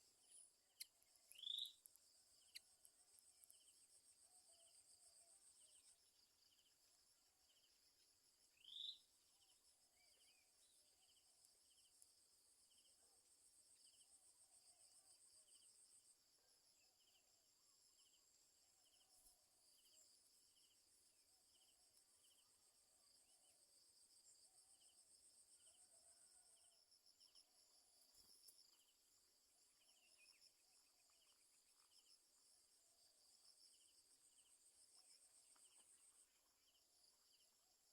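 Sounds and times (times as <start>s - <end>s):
soft repeated chirp: 0.2s - 3.8s
insects chirring: 0.2s - 3.9s.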